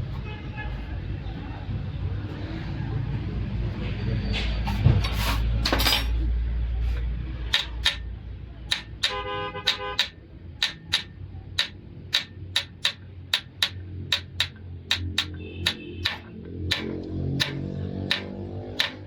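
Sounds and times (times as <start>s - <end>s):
sharp metallic clicks: 7.5s - 19.0s.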